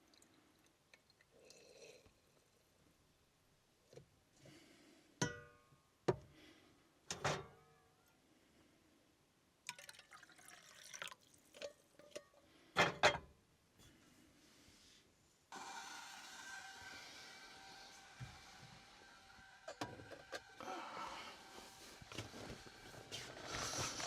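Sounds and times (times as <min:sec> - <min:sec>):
rustling: 0:21.6 - 0:24.0.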